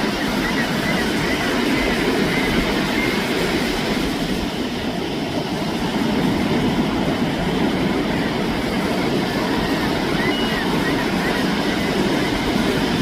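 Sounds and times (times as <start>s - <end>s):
ocean surf breaking: 0.0s - 13.0s
seagull calls: 9.4s - 12.1s.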